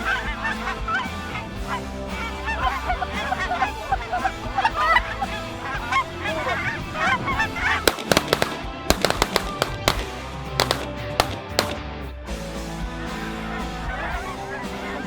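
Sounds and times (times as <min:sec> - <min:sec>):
geese honking: 0:00.0 - 0:11.8, 0:13.2 - 0:15.0
shotgun shots: 0:07.9 - 0:11.9.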